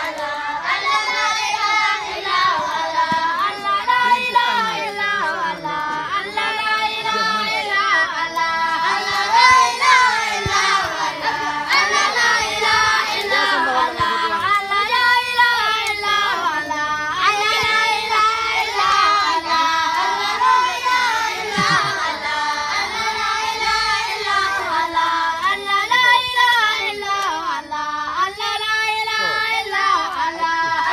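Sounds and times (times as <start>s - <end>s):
children singing together: 0.0s - 30.9s.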